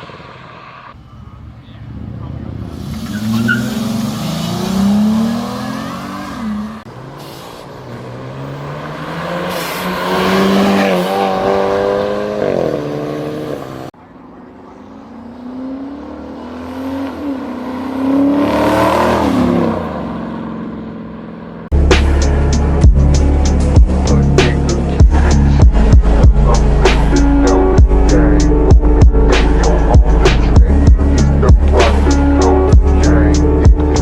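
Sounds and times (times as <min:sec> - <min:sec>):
cars accelerating hard: 0:01.9 - 0:14.0, 0:14.8 - 0:21.8.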